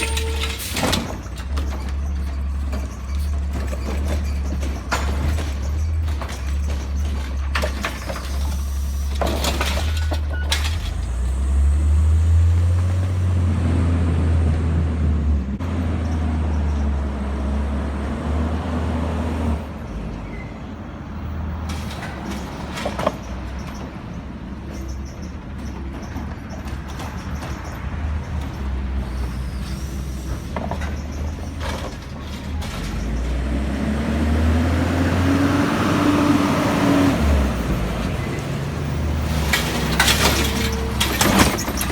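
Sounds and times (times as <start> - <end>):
diesel engine revving: 0.0 - 19.7, 28.1 - 41.9
hydraulics working: 21.6 - 41.9
sharp clanks: 39.2 - 41.9.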